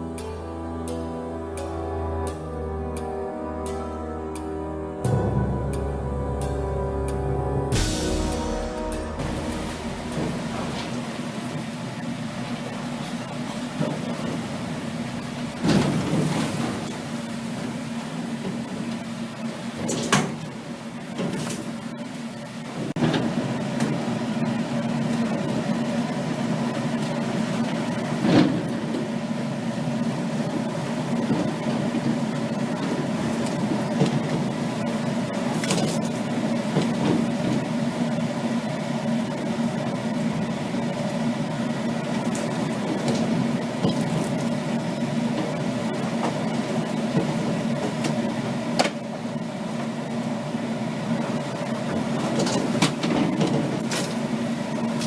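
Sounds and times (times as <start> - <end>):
boat engine droning: 0.0 - 19.7.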